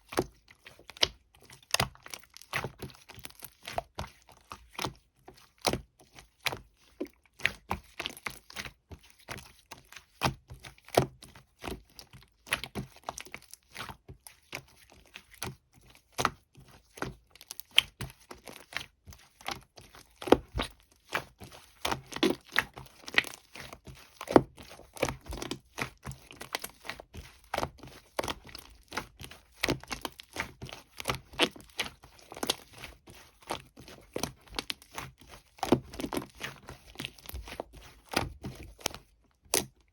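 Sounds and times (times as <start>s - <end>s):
slime crackling and popping: 27.4s - 32.8s.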